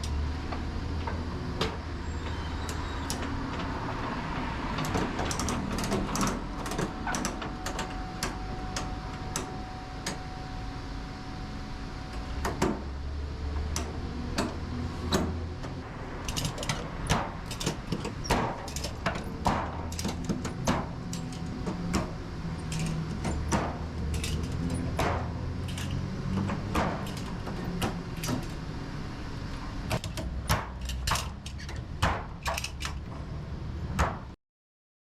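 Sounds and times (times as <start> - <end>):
sharp clicks and knocks: 4.8 - 9.5, 13.6 - 28.6, 29.9 - 33.2.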